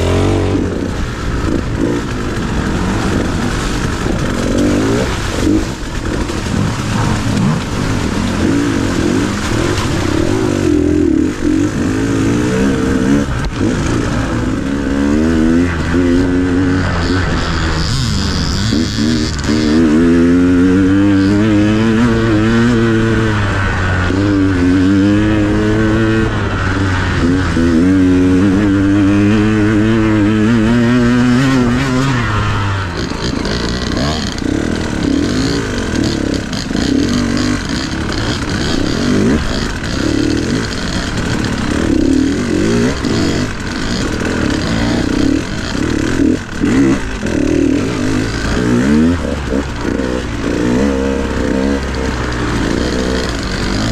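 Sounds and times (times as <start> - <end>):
dirt bike engine revving: 0.0 - 53.9
rough uneven engine note: 31.4 - 53.9.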